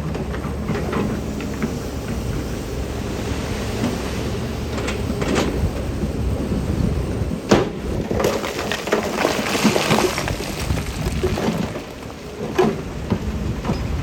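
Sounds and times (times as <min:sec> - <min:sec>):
heavy machine rumble: 0:00.0 - 0:14.0
rocks clattering and crashing: 0:07.9 - 0:13.2.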